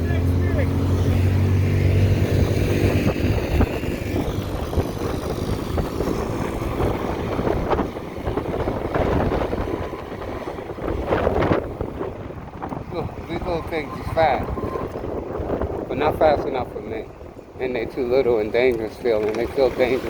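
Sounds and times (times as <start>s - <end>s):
small motorbike engine droning: 0.0s - 11.7s
wind buffeting microphone: 0.0s - 20.0s.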